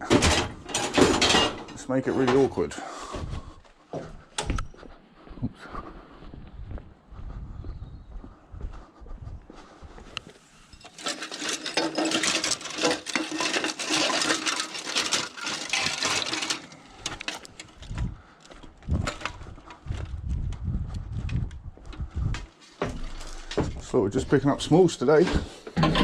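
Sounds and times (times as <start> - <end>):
scrap metal rattling and scraping: 0.0 - 2.8, 10.6 - 18.2, 18.9 - 20.1, 22.5 - 23.8, 24.7 - 26.0.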